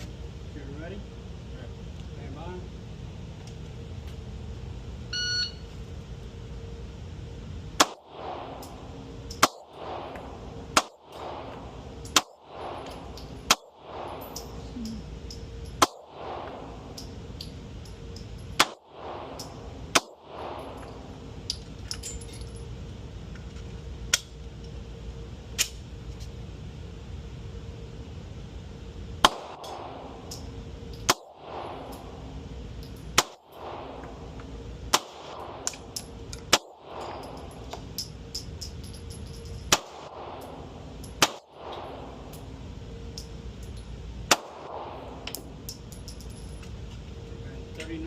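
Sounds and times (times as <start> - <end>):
shot timer beep: 5.1 - 5.7
pistol shots: 7.8 - 14.6, 15.8 - 17.0, 18.6 - 21.0, 29.2 - 30.0, 31.0 - 32.3, 33.1 - 34.1, 34.9 - 37.4, 39.7 - 40.6, 41.2 - 42.1, 44.2 - 45.4.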